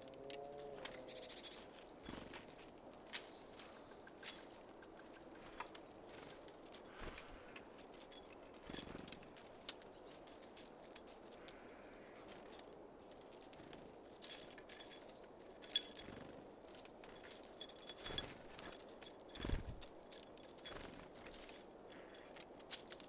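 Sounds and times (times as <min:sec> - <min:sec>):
small birds high calls: 0:00.0 - 0:16.8.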